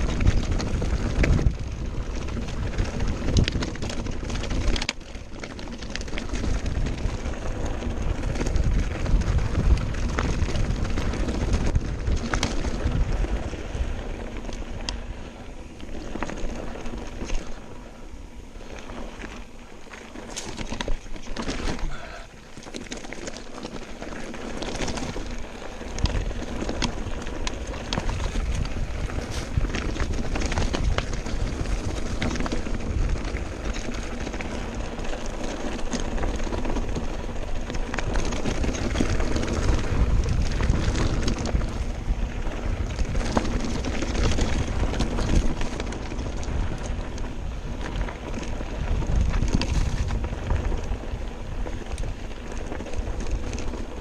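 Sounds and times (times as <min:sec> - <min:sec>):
wind buffeting microphone: 0:00.0 - 0:18.8, 0:23.4 - 0:54.0
mountain bike rattling: 0:00.0 - 0:54.0.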